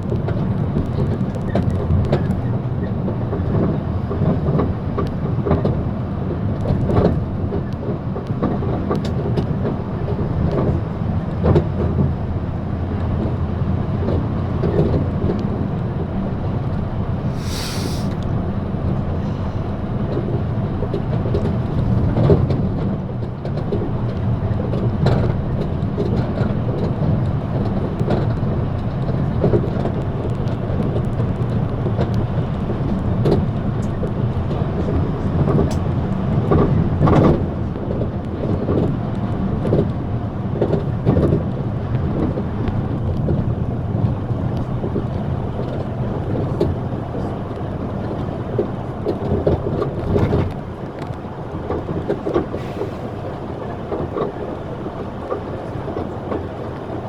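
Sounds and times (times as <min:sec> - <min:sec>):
vehicle rumble from inside: 0:00.0 - 0:57.0.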